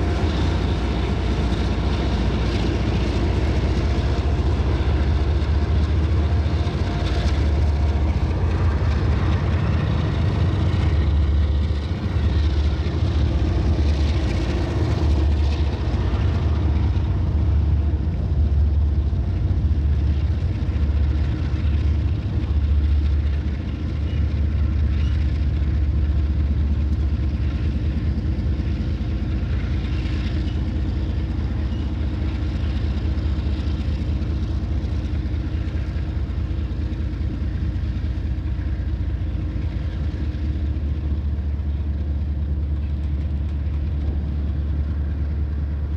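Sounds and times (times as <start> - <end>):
locomotives idling: 0.0 - 45.9.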